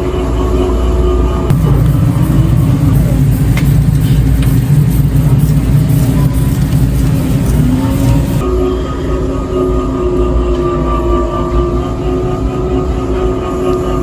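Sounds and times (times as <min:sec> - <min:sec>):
mobility scooter driving: 0:01.5 - 0:08.5.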